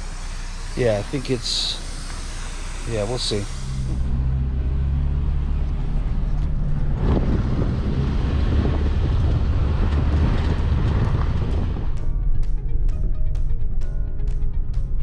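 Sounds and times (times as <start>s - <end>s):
truck engine and road hum: 0.0s - 15.0s
tires crackling over gravel: 5.6s - 12.0s.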